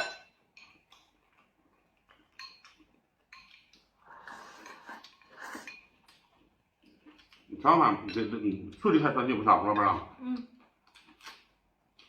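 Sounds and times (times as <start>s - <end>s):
tableware clicking and tapping: 0.0s - 0.9s, 2.3s - 3.9s.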